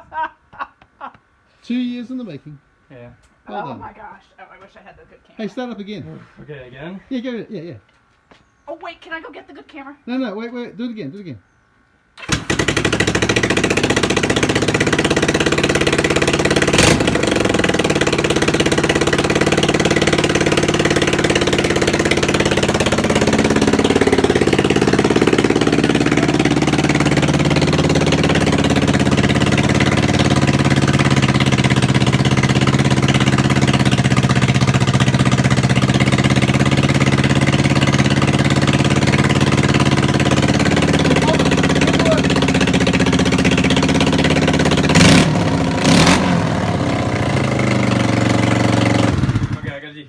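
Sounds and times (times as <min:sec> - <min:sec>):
motorcycle engine idling: 0:12.2 - 0:49.8.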